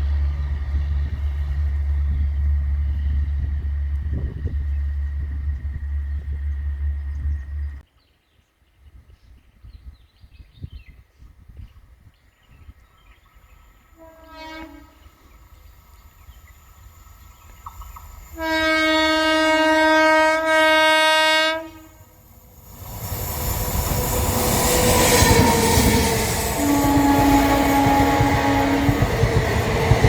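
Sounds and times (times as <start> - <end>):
locomotive horn blasts: 14.0 - 15.1, 18.4 - 22.2, 25.1 - 29.2.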